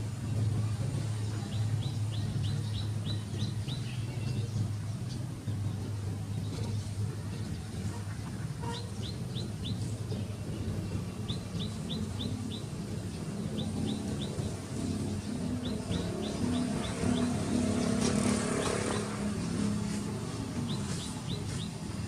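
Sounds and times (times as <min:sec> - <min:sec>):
small bird chirping: 0:08.6 - 0:22.0.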